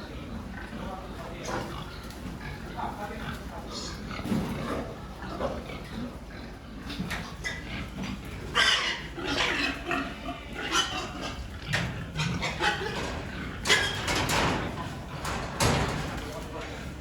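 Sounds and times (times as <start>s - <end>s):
pigs squealing: 3.6s - 16.0s.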